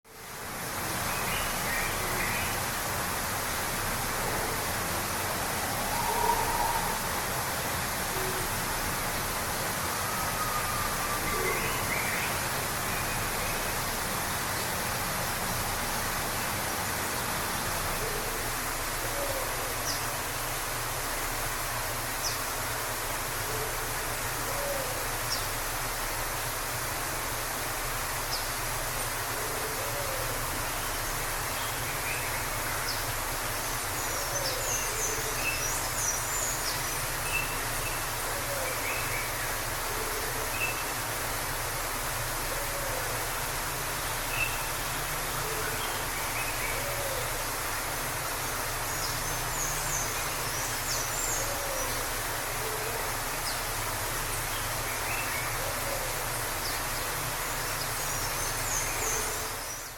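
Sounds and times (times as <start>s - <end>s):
waterfall rushing: 0.1s - 59.9s
soft low hooting calls: 5.6s - 7.4s.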